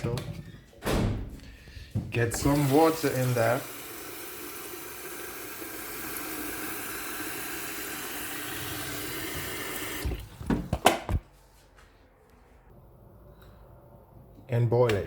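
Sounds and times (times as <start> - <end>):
tap water filling kettle: 2.3 - 10.7.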